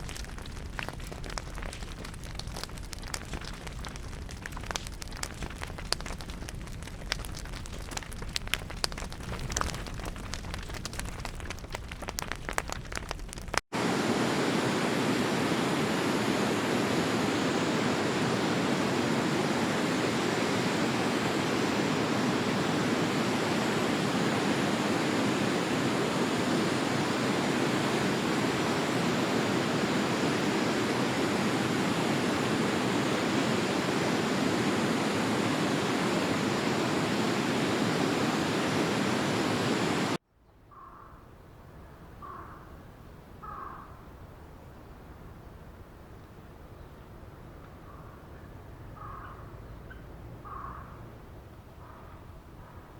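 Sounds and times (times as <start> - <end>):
fire crackling: 0.0 - 40.2
water flowing: 13.8 - 40.2.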